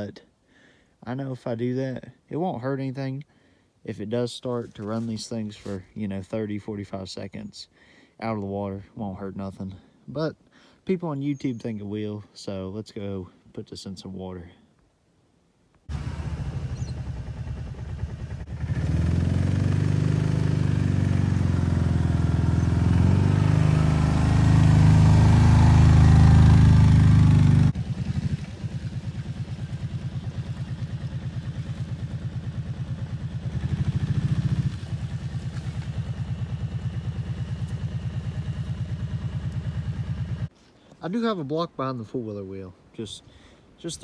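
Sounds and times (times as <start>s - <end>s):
atv engine running: 15.9s - 40.5s.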